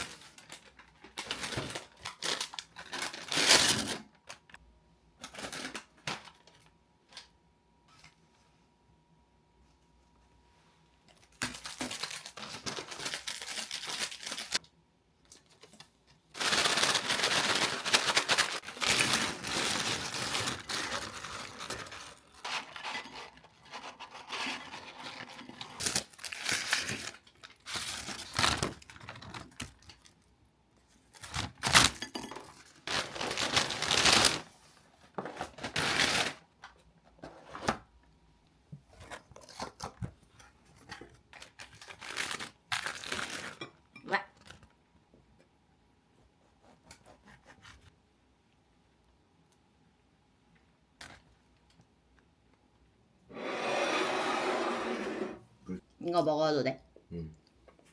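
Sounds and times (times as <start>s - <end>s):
packaging torn and crinkled: 0.0s - 4.6s, 5.2s - 7.3s, 11.2s - 14.6s, 15.3s - 30.3s, 31.1s - 34.5s, 35.4s - 36.6s, 41.3s - 43.6s.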